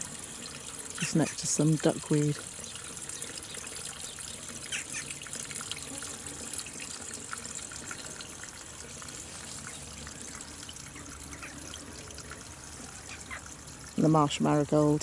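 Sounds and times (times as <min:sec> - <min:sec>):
water trickling and dripping: 0:00.0 - 0:15.0.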